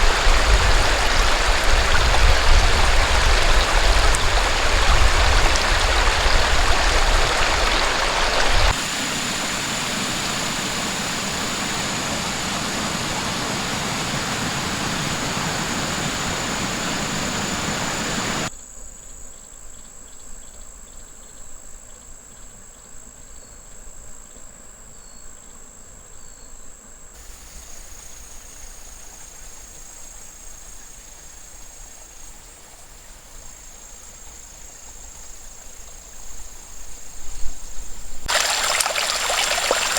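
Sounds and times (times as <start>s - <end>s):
insects droning: 0.0s - 18.5s, 27.2s - 39.9s
stream water rushing: 0.0s - 18.5s, 27.2s - 36.2s, 38.3s - 39.9s.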